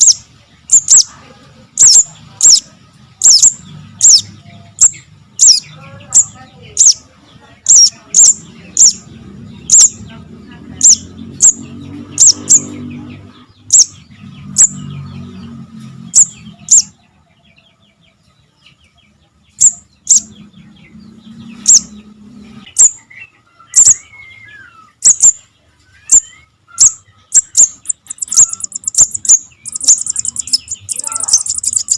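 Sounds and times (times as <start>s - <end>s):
bird fast chattering: 0.0s - 17.0s, 19.5s - 24.2s, 24.8s - 31.9s
bird high chips: 26.0s - 31.9s.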